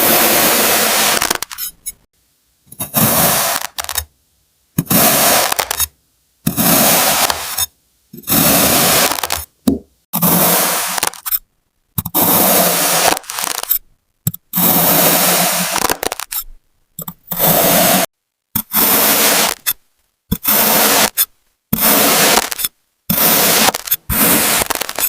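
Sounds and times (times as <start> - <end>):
blade slicing through sand: 0.0 - 1.6, 2.8 - 4.0, 4.8 - 5.9, 6.5 - 7.6, 8.2 - 9.5, 10.2 - 11.2, 12.2 - 13.7, 14.5 - 16.3, 17.4 - 25.0.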